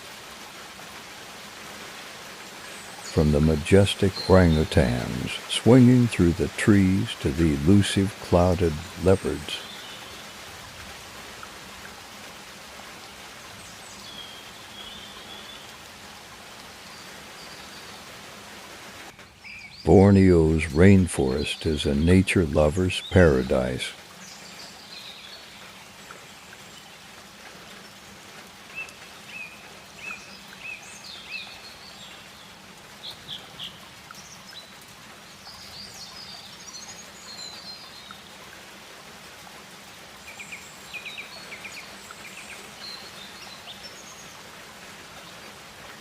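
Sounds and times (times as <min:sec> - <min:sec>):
steady background hiss: 0:00.0 - 0:46.0
birds chirping and trilling: 0:02.6 - 0:10.4, 0:19.2 - 0:26.9, 0:28.7 - 0:38.4, 0:40.3 - 0:44.4.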